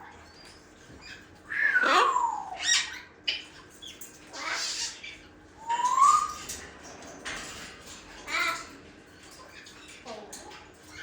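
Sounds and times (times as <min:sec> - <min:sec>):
parrot raspy calls: 0:01.5 - 0:03.1.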